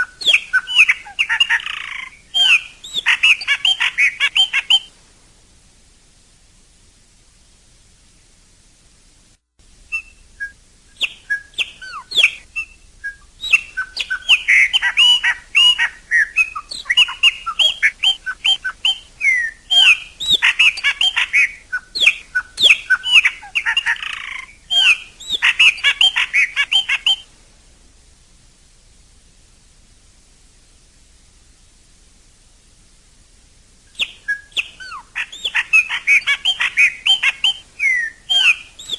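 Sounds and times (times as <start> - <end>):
blackbird singing whistled notes: 0.0 - 4.9, 9.9 - 27.3, 34.0 - 38.9.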